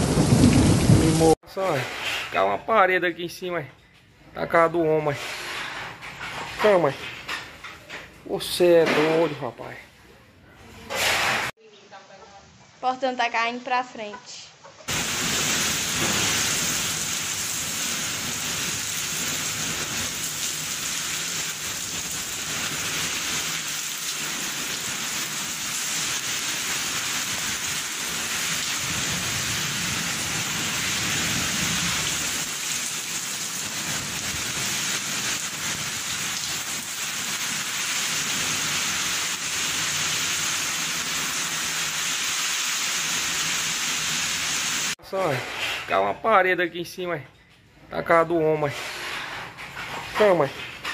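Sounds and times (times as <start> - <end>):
heavy rain pouring: 0.0 - 1.4, 14.9 - 45.0
strong wind: 0.0 - 1.4.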